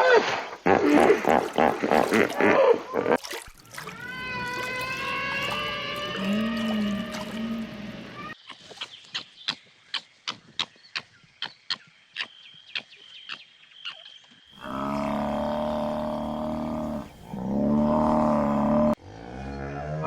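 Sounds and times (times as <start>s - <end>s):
cow mooing: 4.0s - 8.4s, 14.6s - 20.0s.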